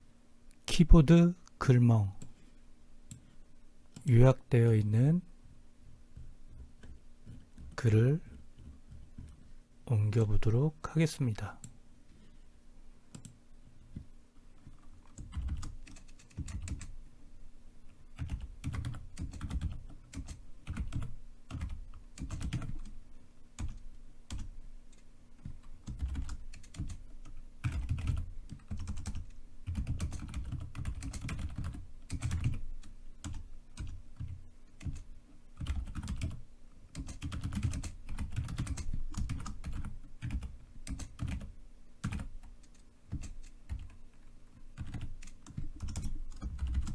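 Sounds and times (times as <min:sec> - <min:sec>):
typing on computer keyboard: 0:14.6 - 0:16.9, 0:18.2 - 0:22.9, 0:23.6 - 0:44.0, 0:44.8 - 0:46.9.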